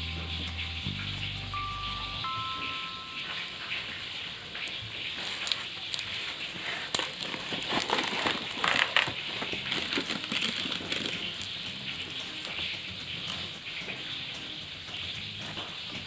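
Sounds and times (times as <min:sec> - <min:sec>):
plastic packaging crinkling: 0:04.4 - 0:12.6.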